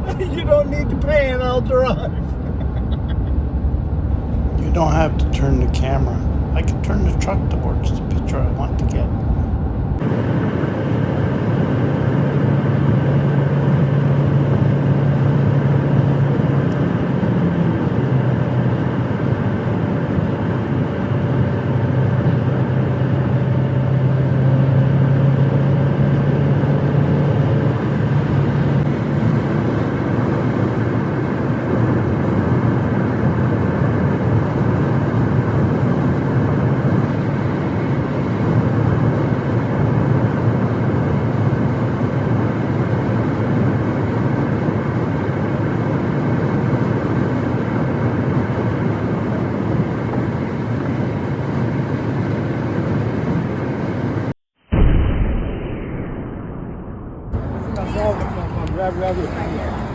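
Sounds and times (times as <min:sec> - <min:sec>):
truck engine hum: 0:00.0 - 0:21.7, 0:22.8 - 0:32.6, 0:57.4 - 0:59.9
road and tyre noise: 0:00.0 - 0:54.3, 0:57.3 - 0:59.9.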